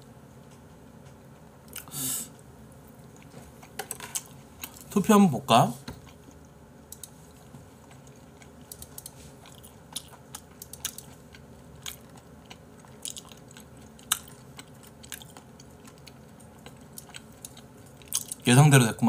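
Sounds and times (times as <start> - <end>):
person chewing meat: 6.0 - 18.5.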